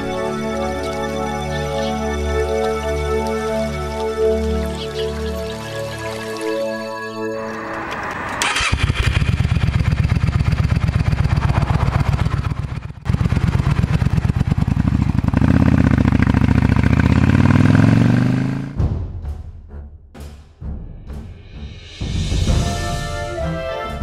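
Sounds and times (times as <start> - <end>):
motorcycle engine starting and running: 7.4 - 18.9
motorcycle accelerating away: 8.0 - 18.8.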